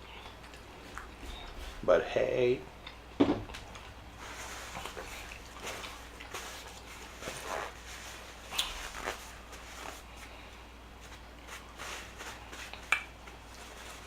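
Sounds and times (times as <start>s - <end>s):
chewing and mouth noises: 0.0s - 1.8s, 4.6s - 7.1s.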